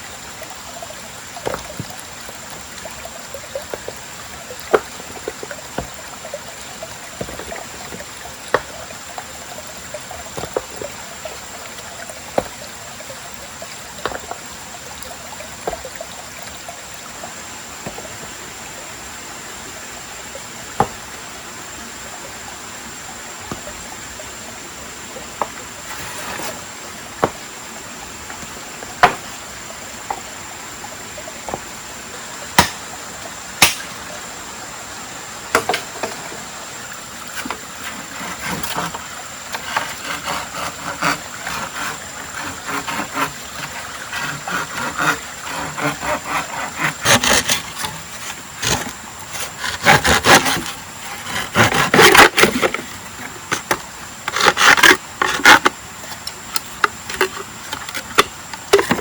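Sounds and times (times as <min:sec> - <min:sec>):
rasping wood scraping: 0:25.8 - 0:27.4, 0:29.0 - 0:29.3, 0:37.3 - 0:55.7, 0:56.6 - 0:59.0
sharp knocks on wood: 0:29.0 - 0:29.3, 0:32.6 - 0:32.8.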